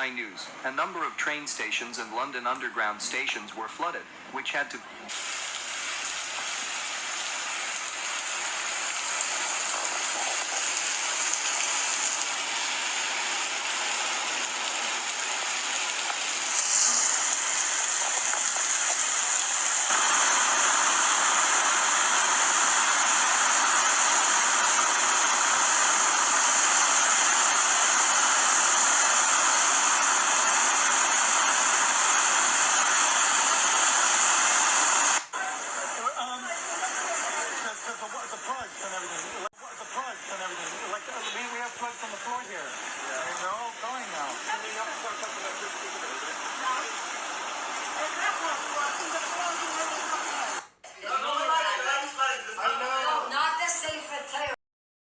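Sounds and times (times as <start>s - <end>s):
floodwater rushing: 5.3s - 21.3s.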